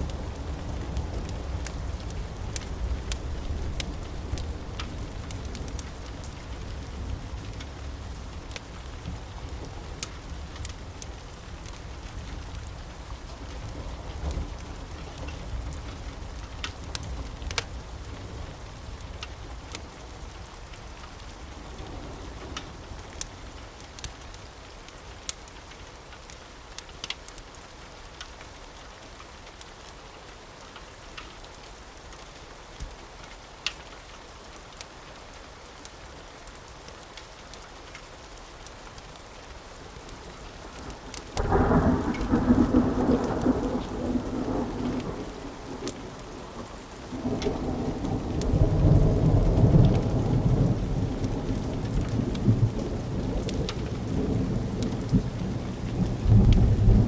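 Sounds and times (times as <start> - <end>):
sharp crackles: 0.0 - 8.8
thunder rumbling: 0.0 - 9.7, 40.7 - 57.0
steady rain: 0.0 - 57.0.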